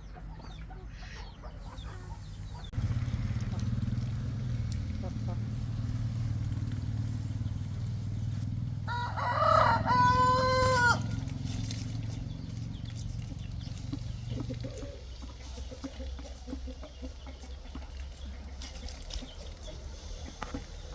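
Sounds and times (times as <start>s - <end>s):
rooster crowing: 8.9s - 11.3s.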